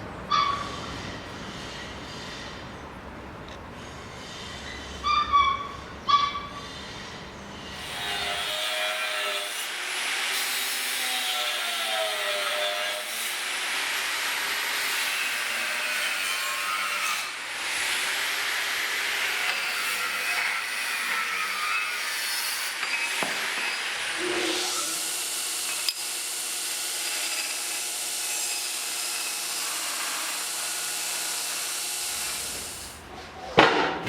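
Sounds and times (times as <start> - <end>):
power tool cutting: 7.8 - 32.9.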